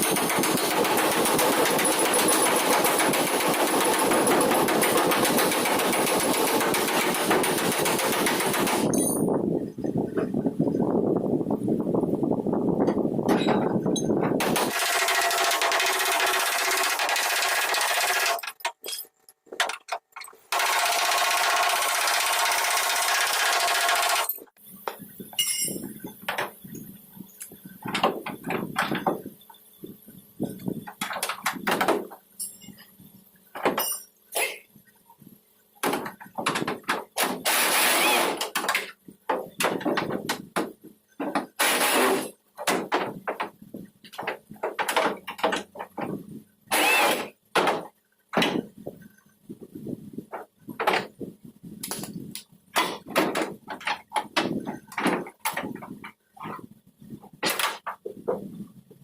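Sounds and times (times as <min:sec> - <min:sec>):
knocks and scraping of tool work: 0:00.0 - 0:10.8, 0:12.8 - 0:14.7, 0:17.0 - 0:20.6, 0:24.3 - 0:59.0
power tool running: 0:14.4 - 0:18.4, 0:20.5 - 0:24.4, 0:37.2 - 0:38.6, 0:41.5 - 0:42.3, 0:46.7 - 0:47.4.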